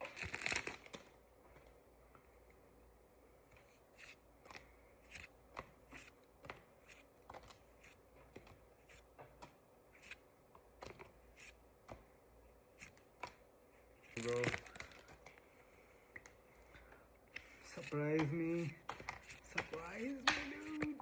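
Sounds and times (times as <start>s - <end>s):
cards flicked with soft snaps: 18.1s - 21.0s.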